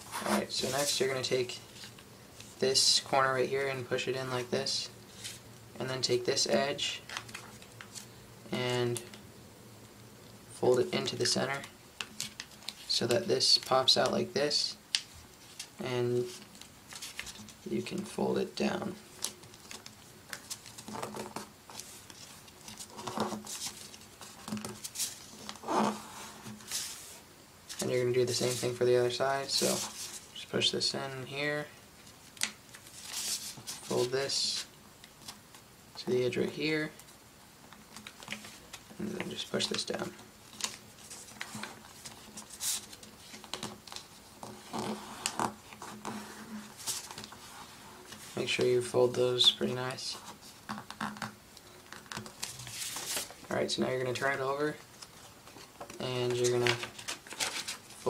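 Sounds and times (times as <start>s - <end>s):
paper crinkling and rustling: 0.0s - 2.6s, 14.9s - 18.1s, 19.0s - 28.8s, 32.0s - 35.6s, 37.0s - 48.7s, 49.4s - 58.0s.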